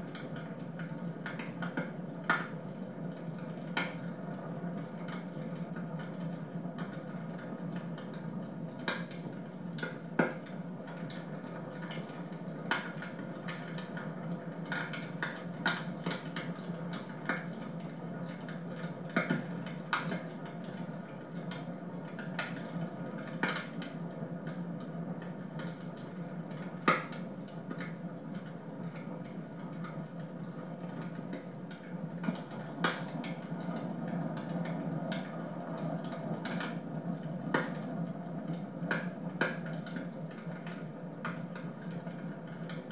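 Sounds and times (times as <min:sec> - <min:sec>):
wood fire crackling: 0:00.1 - 0:42.9.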